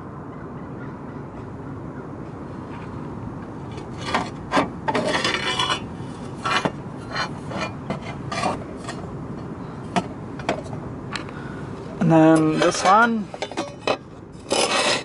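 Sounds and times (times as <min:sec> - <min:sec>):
metal parts scraping and clinking: 0:04.0 - 0:09.1, 0:12.2 - 0:15.0.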